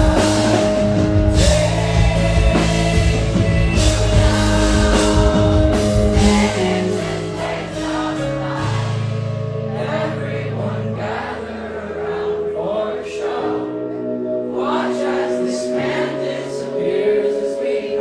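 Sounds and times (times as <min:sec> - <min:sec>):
person singing: 0:00.0 - 0:09.2
heavy bass: 0:00.0 - 0:11.2
keyboard chords: 0:00.0 - 0:18.0.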